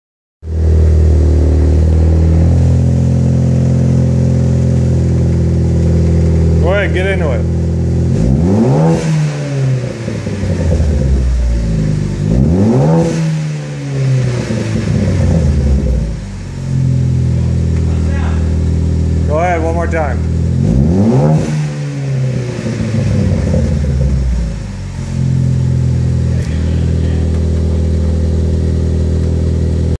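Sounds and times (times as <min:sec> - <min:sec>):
car engine idling: 0:00.4 - 0:30.0.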